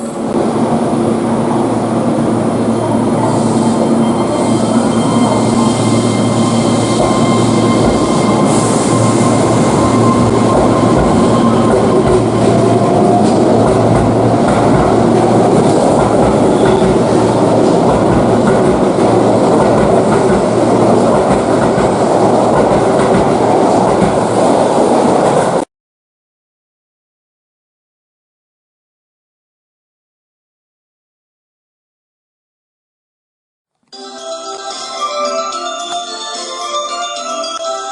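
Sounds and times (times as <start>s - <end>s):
train rumbling on rails: 0.0s - 25.7s.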